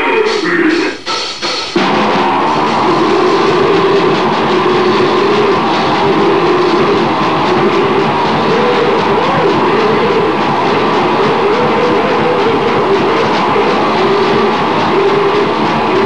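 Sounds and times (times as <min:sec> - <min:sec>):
spoken voice sample: 0:00.0 - 0:01.0
wall of distorted noise: 0:00.0 - 0:16.0.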